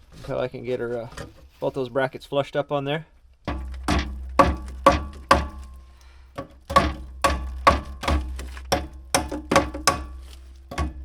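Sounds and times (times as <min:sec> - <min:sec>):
hammer striking metal bracket: 0:03.5 - 0:05.8, 0:06.7 - 0:11.0.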